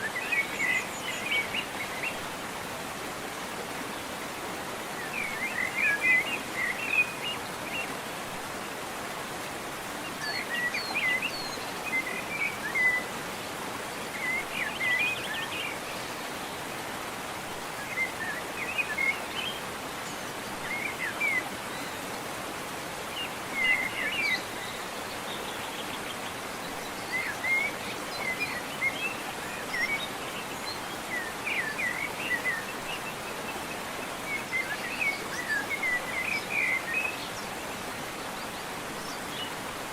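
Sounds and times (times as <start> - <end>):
running water: 0.0 - 39.9
songbird chirping: 13.8 - 39.9.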